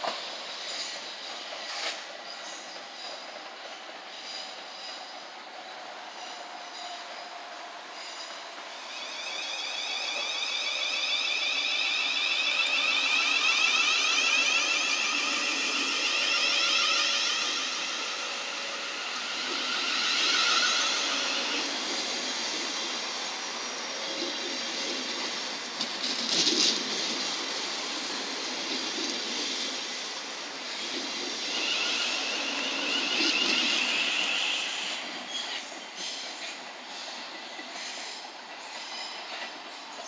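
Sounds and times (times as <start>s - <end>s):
train clank: 0.0s - 5.4s, 24.0s - 29.9s, 30.8s - 40.0s
train wheels rumbling on rail: 0.0s - 40.0s
electric traction whine: 8.9s - 24.6s.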